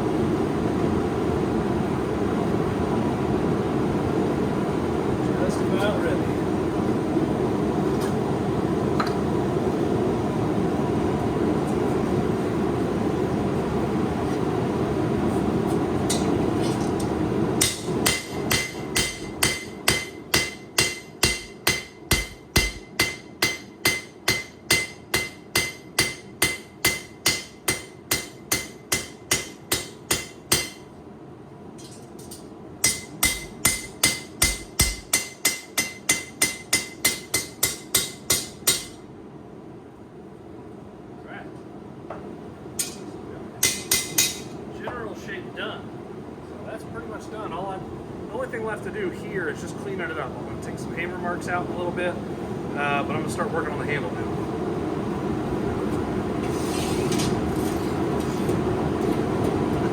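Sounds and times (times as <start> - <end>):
hammer striking steel on anvil: 17.6 - 30.9, 31.8 - 39.0, 42.8 - 44.6.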